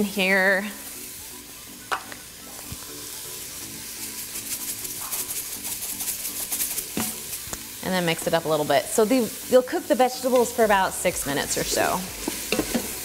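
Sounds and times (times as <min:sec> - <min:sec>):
mushrooms and onions sizzling: 0:00.0 - 0:13.0
pepper shaker rapid ticking: 0:04.0 - 0:07.6.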